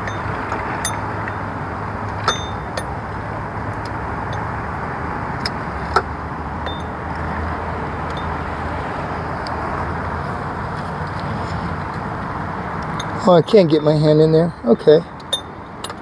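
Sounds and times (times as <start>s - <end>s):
tools clinking on metal: 2.1s - 3.0s, 6.6s - 7.0s, 15.2s - 16.0s.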